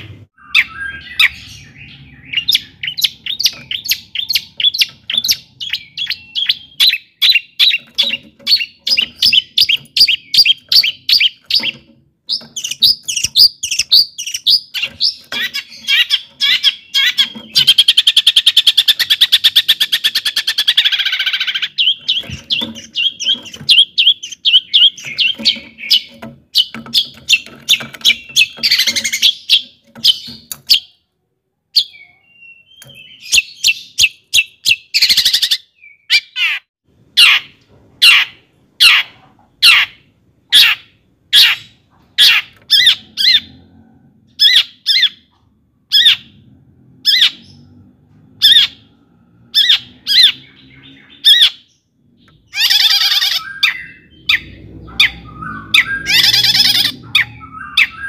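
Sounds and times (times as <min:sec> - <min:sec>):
harsh scratchy bird chattering: 0:00.5 - 0:30.9, 0:52.5 - 0:58.0.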